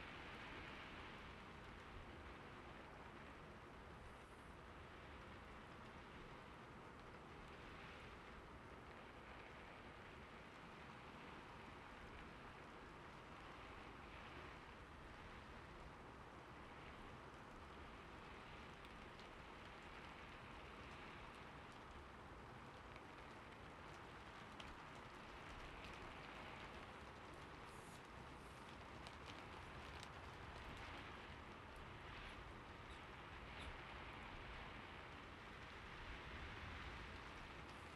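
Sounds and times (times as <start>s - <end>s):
faint steady hiss: 0.0s - 37.9s
faint ticks: 16.8s - 37.9s.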